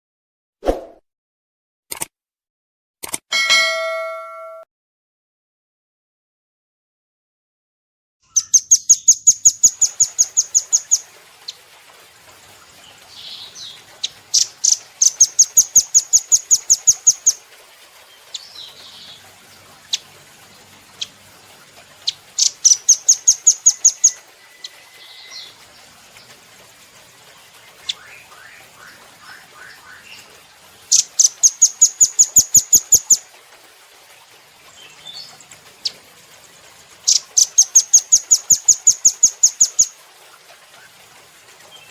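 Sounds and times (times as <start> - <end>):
bird chattering trill: 8.3 - 11.0, 14.0 - 17.4, 22.1 - 25.5, 30.9 - 33.2, 37.1 - 39.9.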